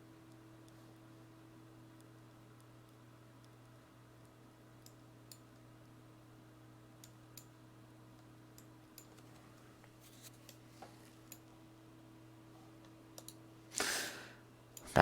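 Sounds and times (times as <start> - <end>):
low electrical hum: 0.0 - 15.0
computer mouse clicks: 4.2 - 5.6, 13.2 - 13.4.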